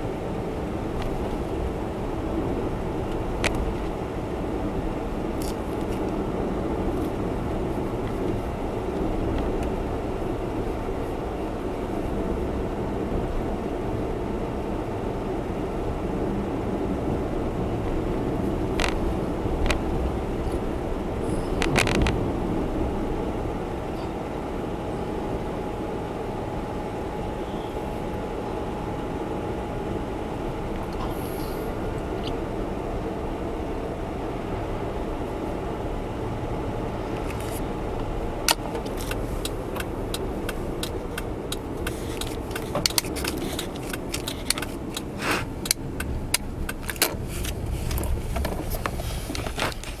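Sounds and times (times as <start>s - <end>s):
car engine: 0.0s - 50.0s
road noise inside car: 0.0s - 50.0s
sharp clicks and rattles: 18.7s - 20.6s, 21.5s - 22.2s, 37.2s - 50.0s.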